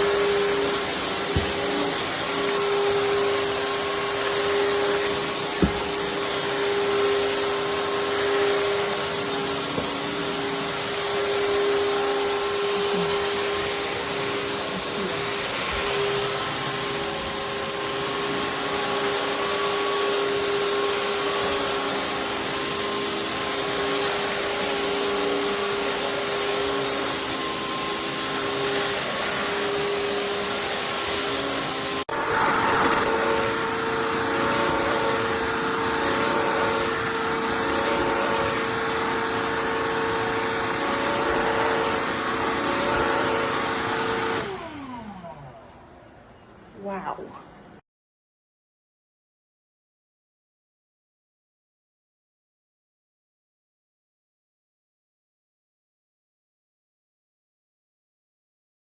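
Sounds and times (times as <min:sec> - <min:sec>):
vacuum mop motor whine: 0:00.0 - 0:47.0.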